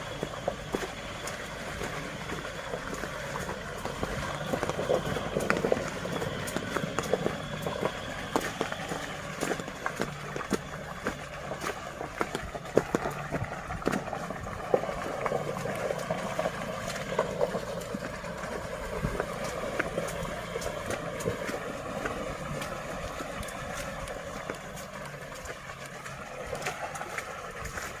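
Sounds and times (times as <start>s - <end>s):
truck engine running: 0.0s - 28.0s
tyres rumbling: 0.0s - 28.0s.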